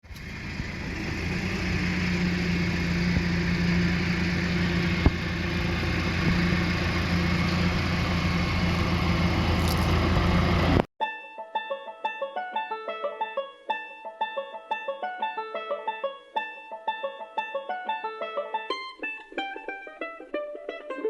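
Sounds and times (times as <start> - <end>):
vehicle engine humming: 0.0 - 10.9.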